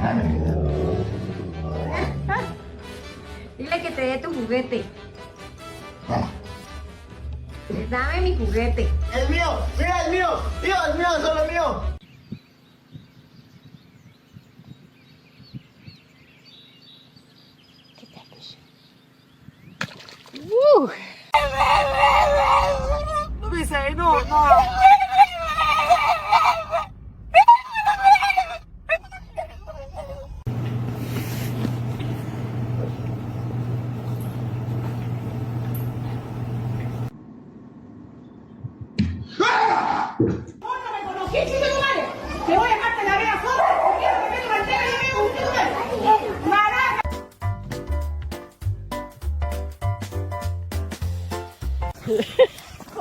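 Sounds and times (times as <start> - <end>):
birds chirping: 12.0 - 20.2, 21.3 - 26.9, 27.8 - 37.1
low mechanical hum with hiss: 30.4 - 38.6.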